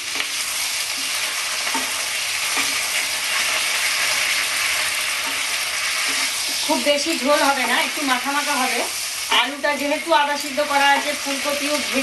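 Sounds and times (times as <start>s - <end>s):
curry sizzling in oil: 0.0s - 12.0s
spatula scraping a pan: 0.1s - 9.2s.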